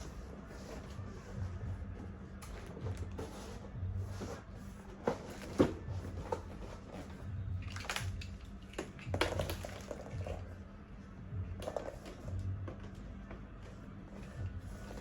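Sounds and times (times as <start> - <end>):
plastic parts clicking and clattering: 7.6 - 10.4.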